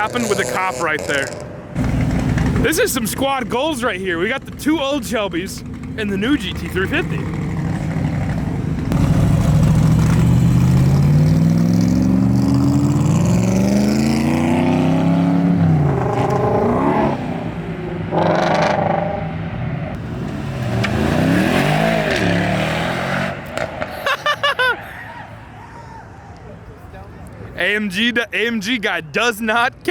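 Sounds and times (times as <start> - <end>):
engine revving past: 0.0 - 2.8, 7.0 - 23.9
car engine accelerating: 0.0 - 23.9.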